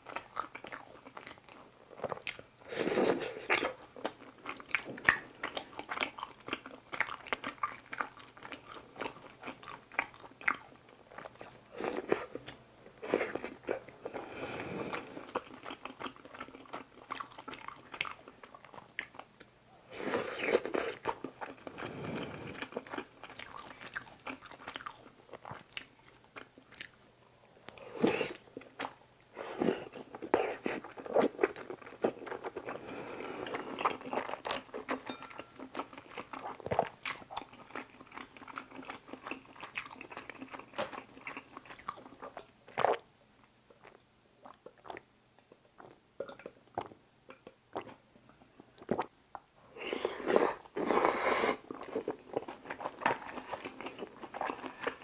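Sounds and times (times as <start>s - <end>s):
close chewing and biting: 14.9s - 19.3s, 20.3s - 27.0s, 27.7s - 43.0s, 50.1s - 55.0s.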